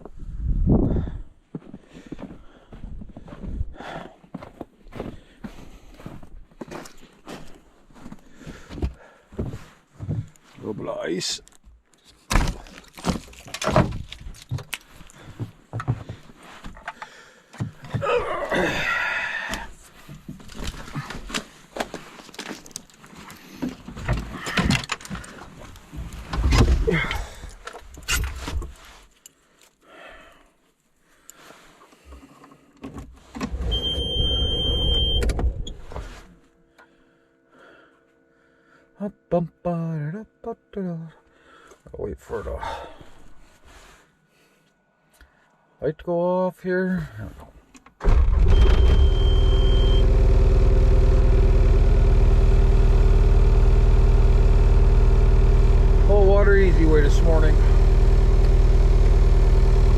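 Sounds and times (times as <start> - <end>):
electronic beep: 33.7 - 35.3, 48.5 - 50.1
diesel engine idling: 48.1 - 59.9
low steady hum: 48.1 - 59.9.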